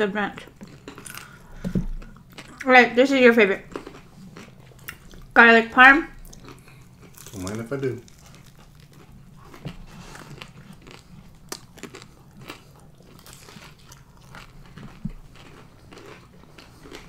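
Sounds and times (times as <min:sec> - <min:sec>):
person crunching fried chicken: 0:00.4 - 0:02.7, 0:03.6 - 0:05.4, 0:06.1 - 0:17.0.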